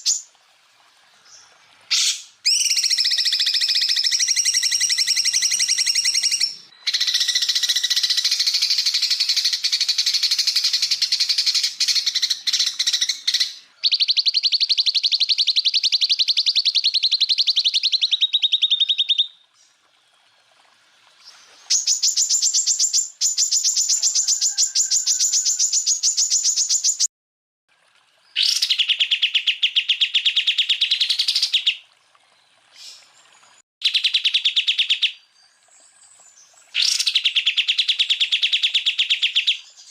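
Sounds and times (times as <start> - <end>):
bird song with rapid trills: 28.3 - 39.9.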